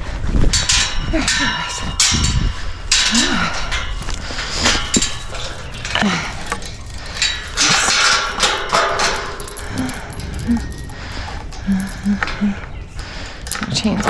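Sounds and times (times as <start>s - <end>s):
metal clinks and knocks: 0.4s - 13.7s
rustling and handling noise: 1.9s - 12.7s.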